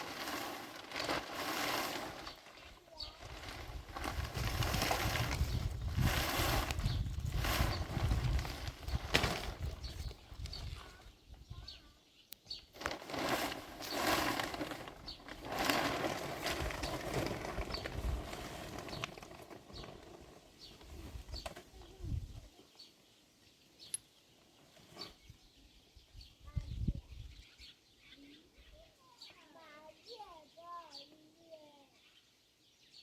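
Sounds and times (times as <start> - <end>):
rustling noise: 0.0 - 11.4, 12.7 - 22.5, 24.4 - 25.5
small birds chirping: 0.0 - 13.2, 13.8 - 33.0.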